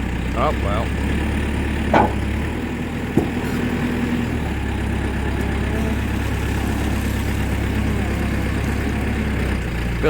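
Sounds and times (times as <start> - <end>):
diesel engine idling: 0.0 - 10.0
sharp knock: 1.9 - 2.3.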